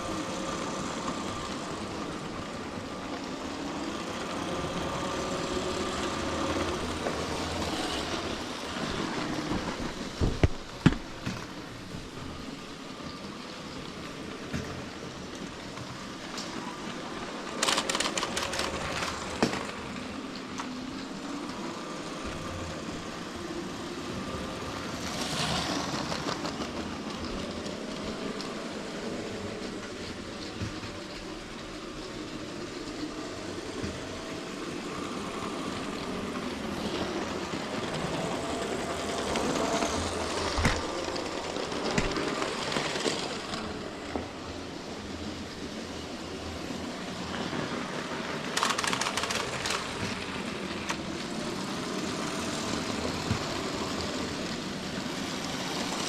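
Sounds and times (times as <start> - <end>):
toy train motor rattling: 15.2 - 23.5, 47.5 - 56.0.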